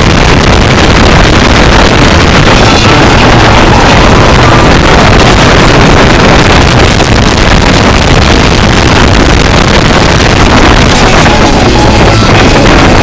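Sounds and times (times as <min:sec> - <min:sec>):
car engine running hard: 0:00.0 - 0:13.0
wind and road noise: 0:00.0 - 0:13.0.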